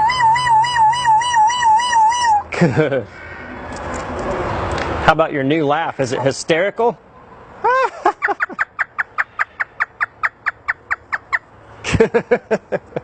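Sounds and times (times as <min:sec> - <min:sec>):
parrot imitating laughter: 0:07.6 - 0:09.7.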